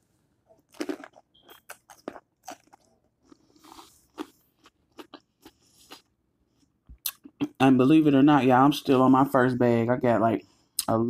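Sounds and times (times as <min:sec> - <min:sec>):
person chewing crunchy food: 0:00.5 - 0:07.6.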